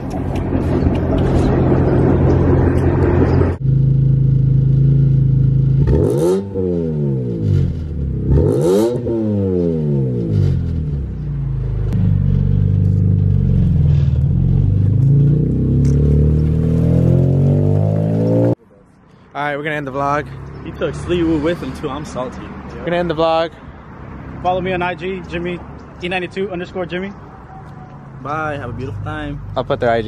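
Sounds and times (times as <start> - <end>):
car engine revving: 0.0 - 18.6
car engine starting: 0.0 - 18.6.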